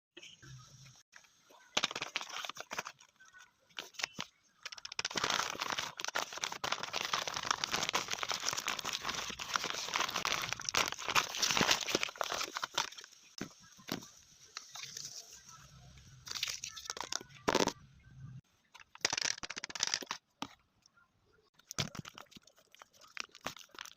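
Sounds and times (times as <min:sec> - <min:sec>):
plastic packaging crinkling: 0:01.8 - 0:03.2, 0:03.8 - 0:15.4, 0:18.8 - 0:20.2, 0:21.6 - 0:23.9.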